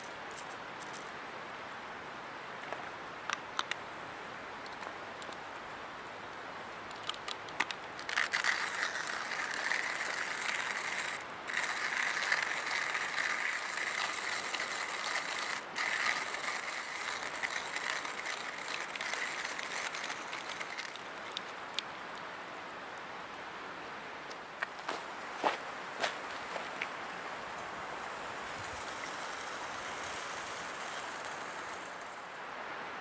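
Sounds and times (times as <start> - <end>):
coffee mill grinding beans: 8.0 - 21.4, 28.6 - 32.2.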